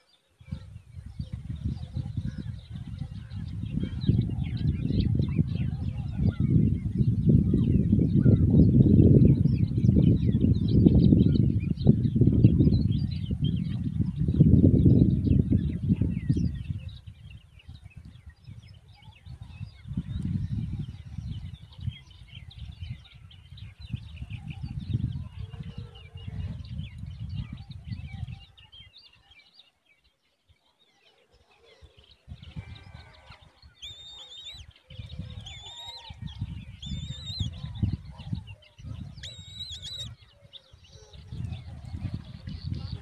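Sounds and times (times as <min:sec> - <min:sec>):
birds chirping: 0:00.0 - 0:43.0
wind rumbling on microphone: 0:00.4 - 0:29.3, 0:31.9 - 0:43.0
high whistled bird calls: 0:33.8 - 0:34.7, 0:35.4 - 0:37.6, 0:39.2 - 0:40.3.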